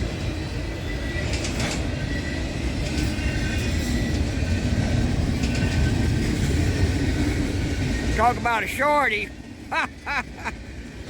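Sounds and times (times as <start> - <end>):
train wheels rumbling on rail: 0.0 - 11.0
wheels clicking over rails: 1.2 - 2.0, 2.6 - 8.8.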